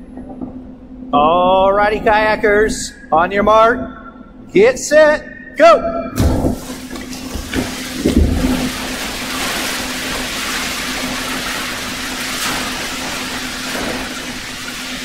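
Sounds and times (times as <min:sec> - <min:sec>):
kayak paddles splashing water: 0:06.5 - 0:15.0.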